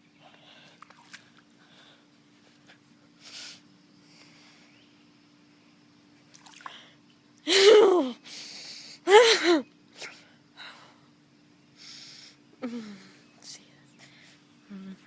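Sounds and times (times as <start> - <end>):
person gasping cries: 7.5 - 8.2, 9.0 - 9.6.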